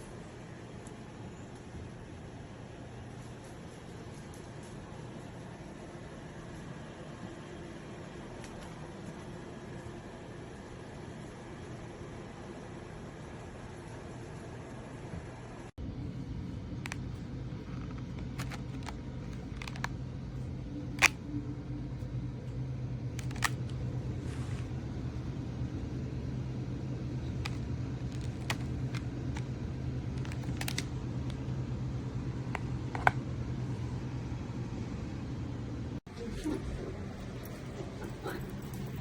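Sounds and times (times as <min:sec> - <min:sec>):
steady low hum: 0:09.0 - 0:39.0.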